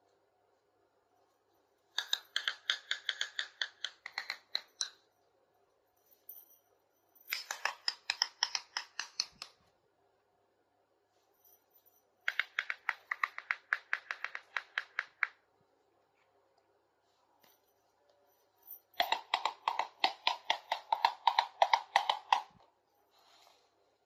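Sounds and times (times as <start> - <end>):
rapid plastic toy clicking: 2.0 - 4.9, 7.3 - 9.6, 12.3 - 15.4, 19.0 - 22.6.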